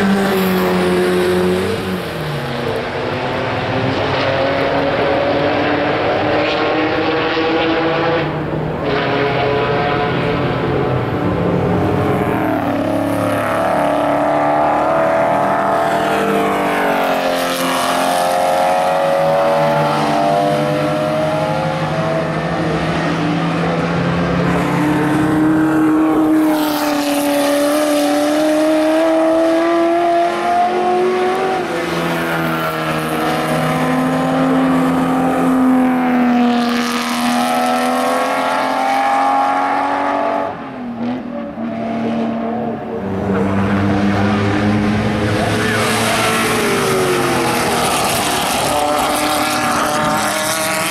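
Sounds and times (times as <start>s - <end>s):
racing cars passing at full throttle: 0.0s - 50.9s.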